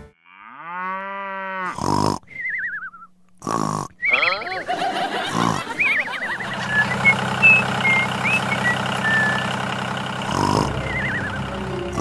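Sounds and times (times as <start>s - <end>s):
wobbly warbling pitch glides: 4.1s - 4.6s
short high chirps: 6.7s - 9.6s.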